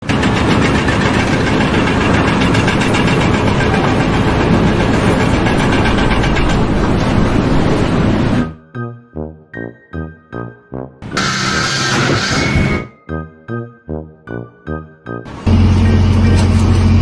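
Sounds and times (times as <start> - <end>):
large engine running loudly: 0.0 - 8.6, 11.0 - 12.8, 15.3 - 17.0.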